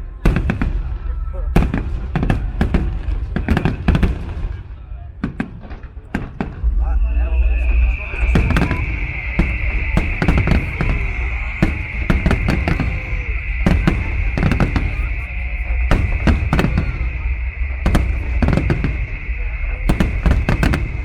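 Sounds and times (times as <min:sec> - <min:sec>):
fireworks bangs and crackles: 0:00.0 - 0:21.0
low rumble: 0:00.0 - 0:21.0.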